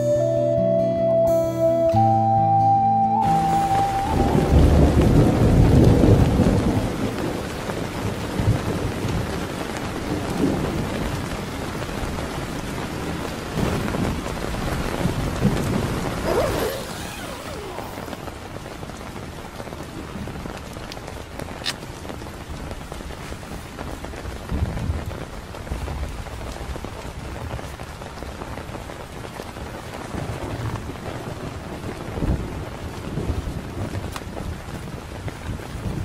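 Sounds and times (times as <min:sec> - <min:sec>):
steady rain falling: 0:03.1 - 0:36.0
low thunder rumble: 0:04.1 - 0:18.7, 0:24.2 - 0:27.4.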